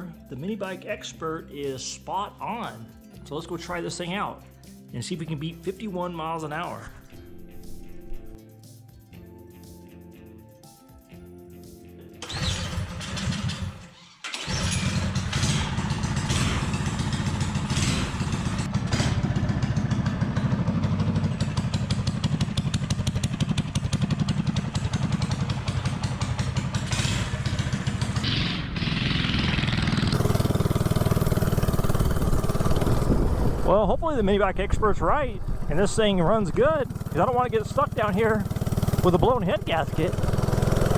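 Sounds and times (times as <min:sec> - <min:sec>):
small engine running: 0:12.2 - 0:33.8, 0:34.7 - 0:40.9.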